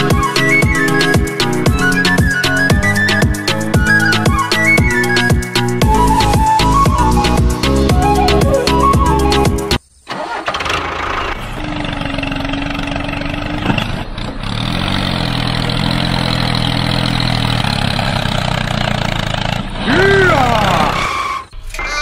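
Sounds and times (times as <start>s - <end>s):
music: 0.0s - 9.8s
engine starting and running: 8.8s - 22.0s.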